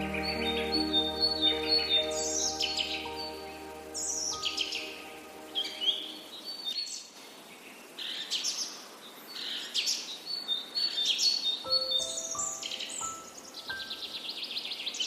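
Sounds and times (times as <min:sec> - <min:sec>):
soft sustained music notes: 0:00.0 - 0:06.5, 0:11.7 - 0:14.2
birds chirping and trilling: 0:00.0 - 0:15.0.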